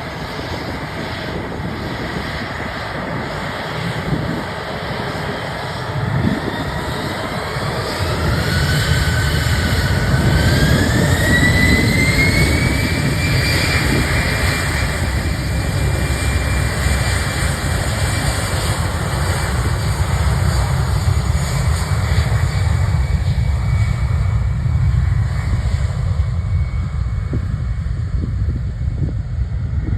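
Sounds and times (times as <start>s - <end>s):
jet engine whine: 0.0s - 29.9s.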